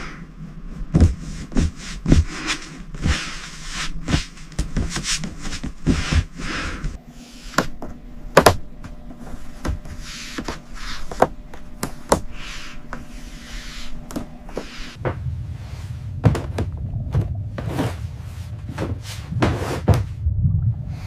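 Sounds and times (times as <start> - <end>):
hand tool scraping strokes: 12.2 - 15.0.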